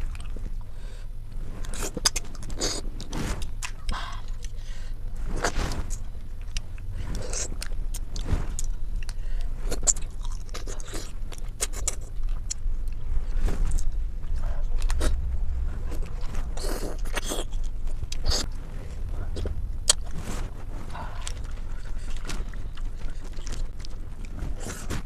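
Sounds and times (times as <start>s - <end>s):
steady low hum: 0.0s - 25.0s
chewing and sucking: 5.3s - 15.3s, 15.9s - 18.6s, 19.3s - 25.0s.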